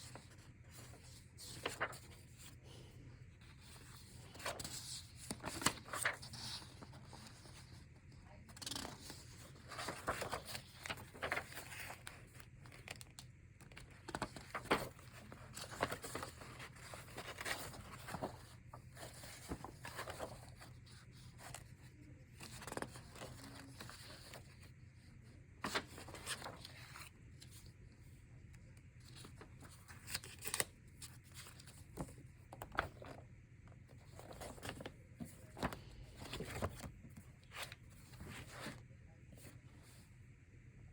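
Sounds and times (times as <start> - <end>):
paper sheets swishing: 11.2 - 11.5.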